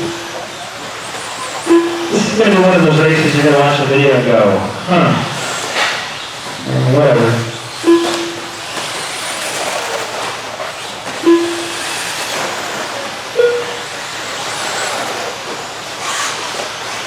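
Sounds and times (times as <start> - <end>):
short electronic beeps: 0.0 - 0.4, 1.7 - 2.6, 7.8 - 8.7, 11.2 - 12.2, 13.4 - 13.9
toy truck motors whining: 0.0 - 17.0.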